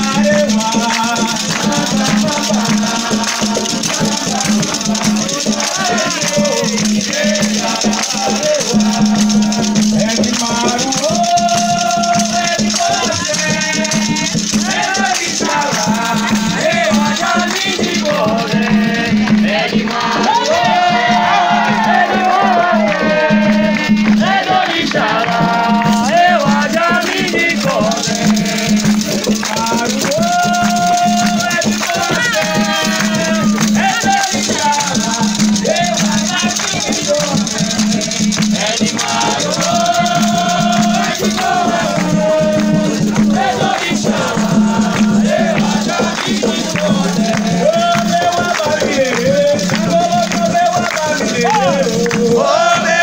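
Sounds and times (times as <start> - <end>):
drums beating: 0.0 - 53.0
people singing a chant: 0.0 - 53.0
percussion: 0.0 - 53.0
rattle shaking: 0.0 - 53.0.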